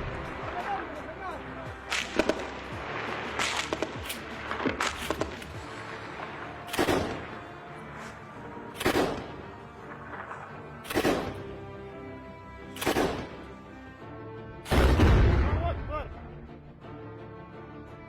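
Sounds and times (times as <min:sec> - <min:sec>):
faint music: 0:00.0 - 0:18.0
echoing gunshots: 0:01.8 - 0:11.9, 0:12.6 - 0:13.6, 0:14.7 - 0:15.9.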